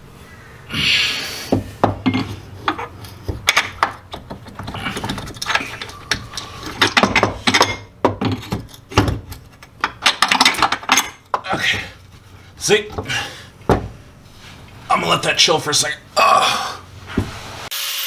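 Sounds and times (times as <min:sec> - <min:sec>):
metal tools clinking and clanking: 0:02.0 - 0:13.2.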